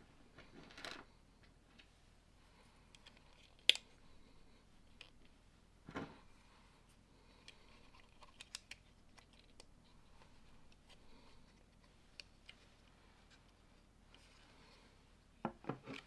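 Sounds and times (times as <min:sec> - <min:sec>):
plastic toy bricks clicking together: 0:07.4 - 0:09.7.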